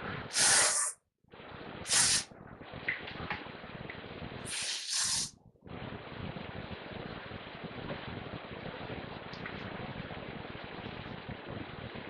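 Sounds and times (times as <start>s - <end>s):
hairspray can hissing: 0.3s - 1.0s, 1.9s - 2.3s, 4.5s - 5.3s.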